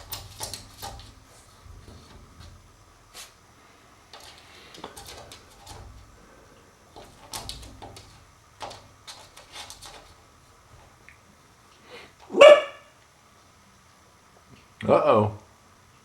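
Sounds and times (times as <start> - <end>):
puppy claws clicking and scraping: 0.0 - 3.4, 4.1 - 6.3, 6.9 - 11.0.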